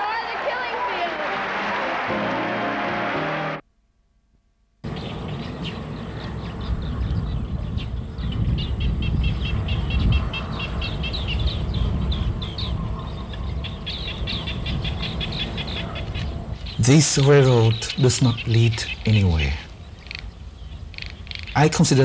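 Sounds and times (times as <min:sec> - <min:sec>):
birds chirping: 0:04.8 - 0:22.0.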